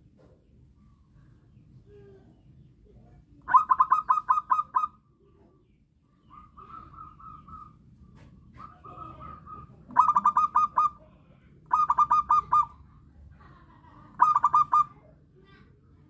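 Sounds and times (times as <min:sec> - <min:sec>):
dove cooing: 0:03.4 - 0:05.0, 0:06.3 - 0:07.8, 0:08.5 - 0:11.0, 0:11.7 - 0:12.9, 0:14.2 - 0:15.0.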